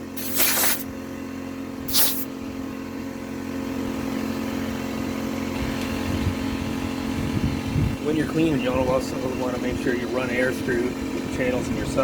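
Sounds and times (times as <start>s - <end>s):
air blow gun hissing blasts: 0.0s - 0.9s, 1.9s - 2.3s
air compressor humming: 0.0s - 0.9s, 1.8s - 2.3s.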